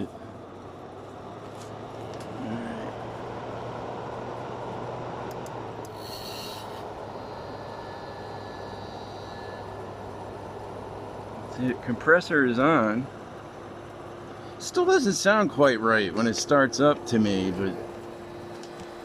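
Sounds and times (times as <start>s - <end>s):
air conditioner fan blowing: 0.0s - 19.0s
compressor humming: 0.0s - 19.0s
brief hiss: 5.9s - 9.6s.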